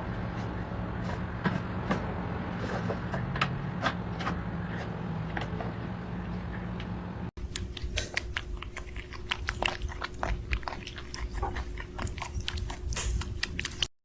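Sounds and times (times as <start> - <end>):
faint steady hum: 5.6 - 13.9
pet chewing and crunching: 7.4 - 13.9.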